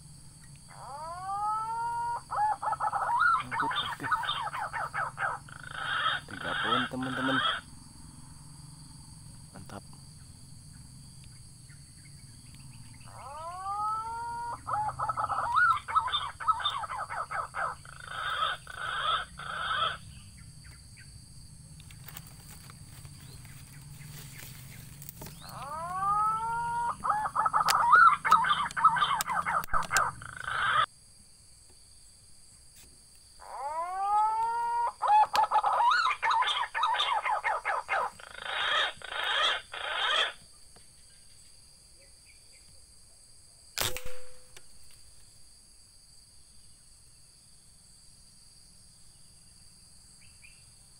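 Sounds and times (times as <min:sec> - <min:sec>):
pigeon whistling and warbling: 0:13.2 - 0:20.0, 0:25.3 - 0:30.9, 0:33.6 - 0:40.4.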